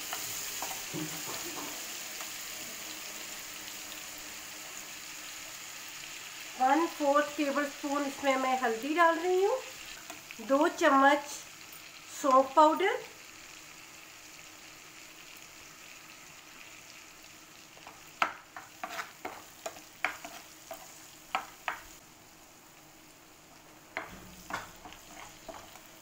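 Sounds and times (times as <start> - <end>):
spices sizzling in oil: 0.0 - 26.0
steel spoon scraping pan: 18.6 - 21.4, 24.0 - 25.8.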